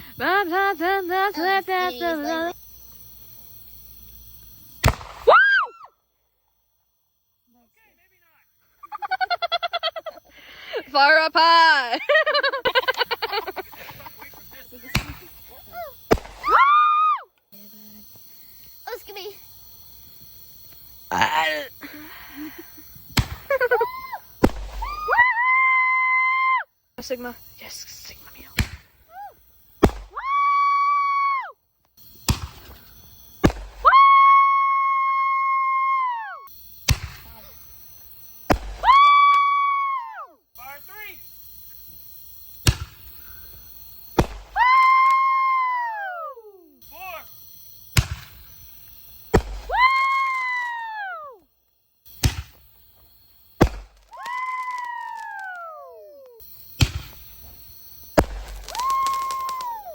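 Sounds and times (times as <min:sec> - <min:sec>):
firework bangs: 0:04.7 - 0:05.6, 0:12.8 - 0:17.0, 0:22.8 - 0:25.4, 0:28.4 - 0:29.1, 0:29.7 - 0:30.5, 0:32.0 - 0:34.2, 0:36.5 - 0:39.7, 0:42.6 - 0:45.4, 0:47.9 - 0:50.7, 0:52.1 - 0:59.9
firework whistle: 0:04.8 - 0:05.9, 0:16.1 - 0:17.2, 0:23.2 - 0:26.1, 0:38.5 - 0:40.0, 0:53.6 - 0:59.9.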